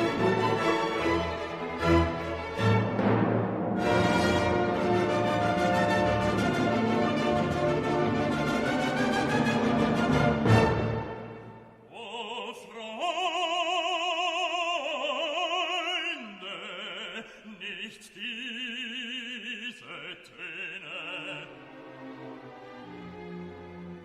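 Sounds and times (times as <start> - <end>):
operatic singing with vibrato: 11.4 - 22.2.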